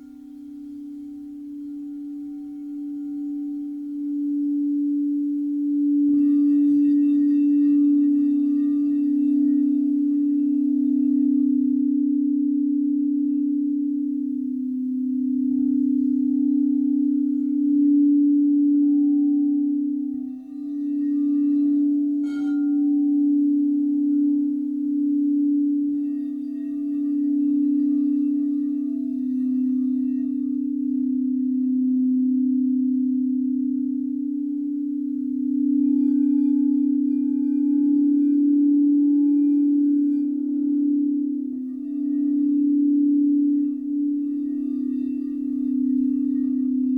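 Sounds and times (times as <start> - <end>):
crystal singing bowls ringing: 0.0 - 46.9.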